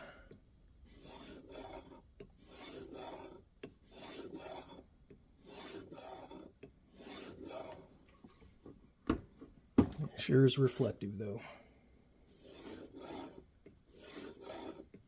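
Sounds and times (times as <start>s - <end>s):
sharpening plate rasping on blade: 0.9s - 4.8s, 5.4s - 7.8s, 12.3s - 15.0s.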